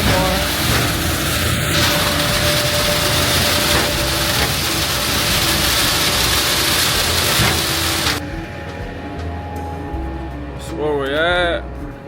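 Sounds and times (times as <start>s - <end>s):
loud steady rushing noise: 0.0s - 8.6s.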